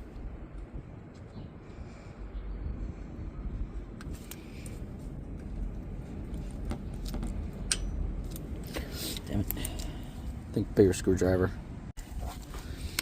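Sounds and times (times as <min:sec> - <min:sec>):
low rumble: 0:00.0 - 0:08.8
metallic clicks of hand tools: 0:07.6 - 0:08.5.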